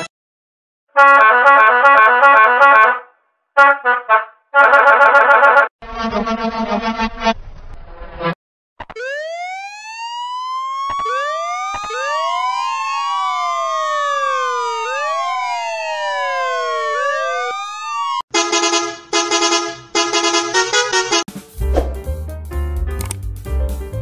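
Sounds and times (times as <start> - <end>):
police sirens wailing: 8.9 - 18.2
rapid siren tonal blasts: 8.9 - 18.5.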